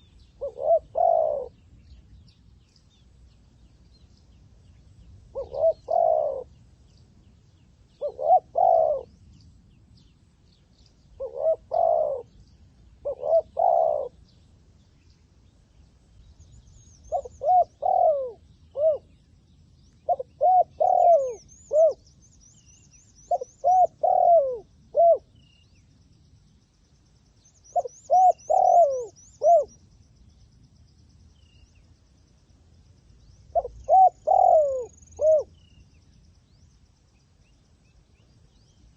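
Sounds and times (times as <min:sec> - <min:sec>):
dove cooing: 0:00.0 - 0:01.6, 0:05.3 - 0:06.6, 0:08.0 - 0:09.2, 0:11.2 - 0:12.4, 0:13.0 - 0:14.2, 0:17.1 - 0:19.2, 0:20.1 - 0:22.0, 0:23.3 - 0:25.4, 0:27.7 - 0:29.8, 0:33.5 - 0:35.7.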